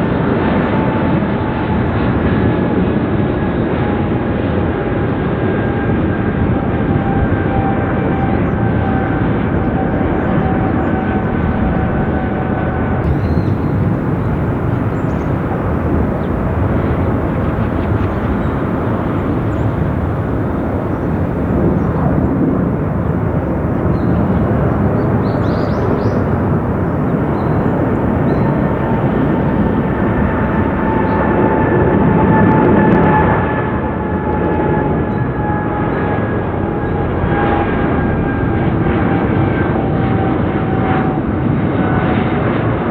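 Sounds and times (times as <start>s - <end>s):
jet engines running: 13.0s - 41.9s.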